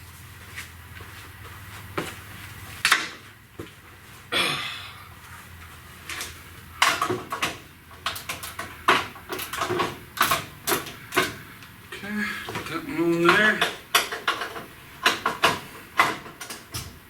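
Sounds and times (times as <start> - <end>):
hand tools clicking and knocking: 6.1 - 16.9.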